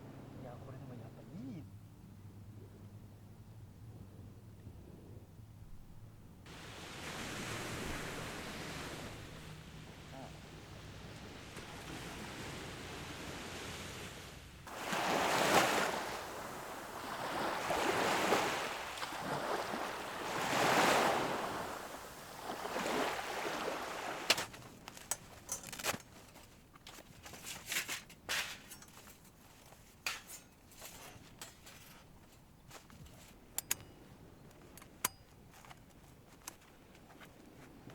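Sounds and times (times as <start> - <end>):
sea waves washing ashore: 6.5 - 25.8.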